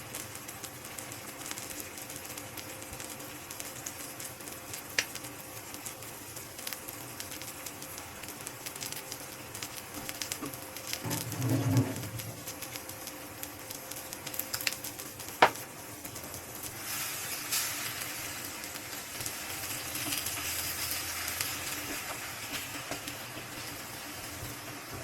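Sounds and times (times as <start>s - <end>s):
food sizzling and crackling: 0.0s - 25.0s.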